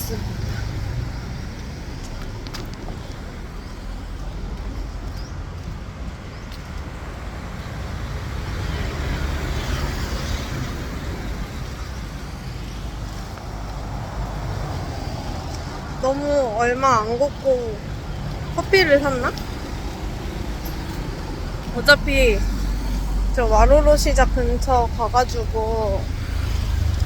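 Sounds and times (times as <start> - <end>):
street traffic hum: 0.0 - 27.0
vehicle passing: 6.9 - 27.0.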